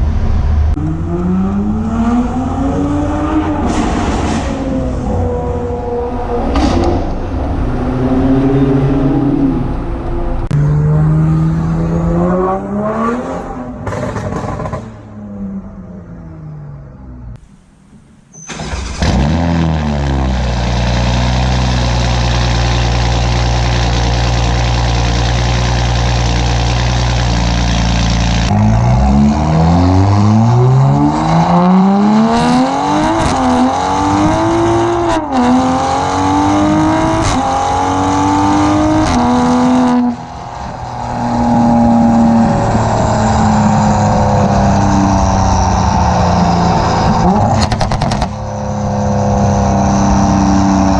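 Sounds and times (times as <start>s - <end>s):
loud car exhaust accelerating: 0.0s - 18.0s, 18.8s - 50.9s
exhaust cracks: 10.3s - 29.5s, 39.0s - 50.9s.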